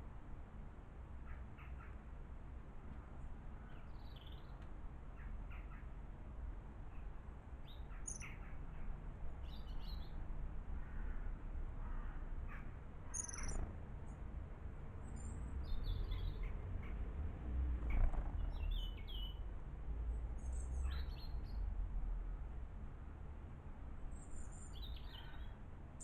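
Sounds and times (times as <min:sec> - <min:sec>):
small birds chirping: 0:03.7 - 0:04.6, 0:07.0 - 0:10.2, 0:12.5 - 0:14.2, 0:15.0 - 0:17.0, 0:17.9 - 0:19.4, 0:24.1 - 0:25.6.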